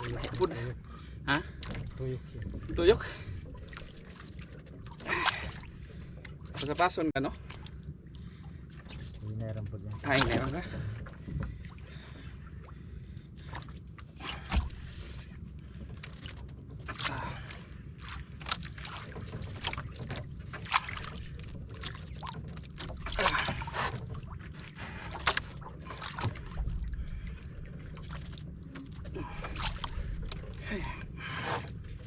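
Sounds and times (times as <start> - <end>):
water lapping against boat hull: 0.0 - 32.0
low rumble: 23.0 - 32.0.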